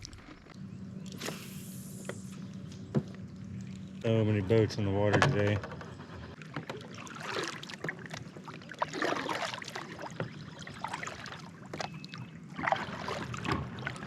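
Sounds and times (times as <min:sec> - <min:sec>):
water splashing and trickling: 0:06.3 - 0:14.0
steady wash of water: 0:06.8 - 0:11.5, 0:12.6 - 0:14.0.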